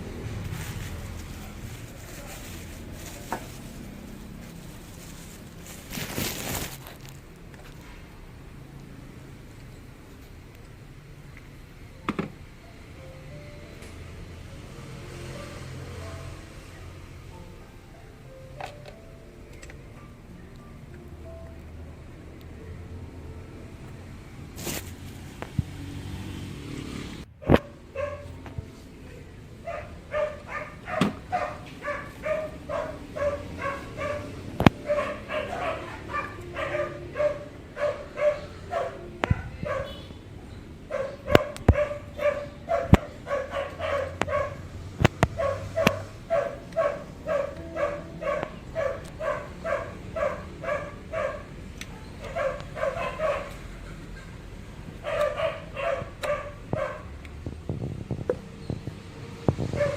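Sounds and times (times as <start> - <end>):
small dog yapping: 29.7 - 40.0, 40.9 - 44.6, 52.2 - 53.6, 55.0 - 57.0.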